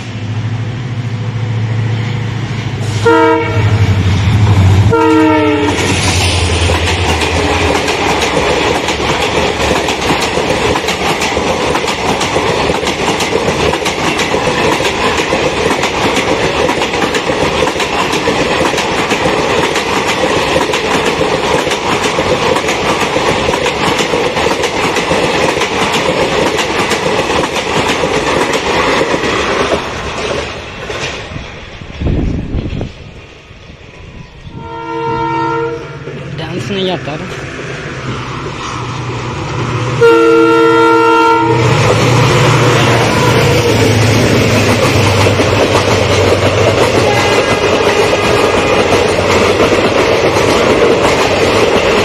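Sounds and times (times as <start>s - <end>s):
diesel locomotive engine drone: 0.0s - 52.0s
train horn blasts: 2.8s - 5.9s, 34.5s - 36.1s, 40.0s - 41.8s, 47.0s - 47.6s
train wheels clacking over rail joints: 5.2s - 33.2s, 41.6s - 52.0s.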